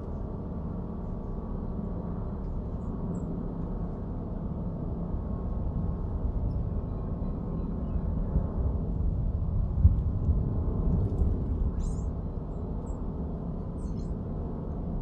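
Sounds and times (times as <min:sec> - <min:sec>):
faint bird chirps: 0:13.8 - 0:14.2.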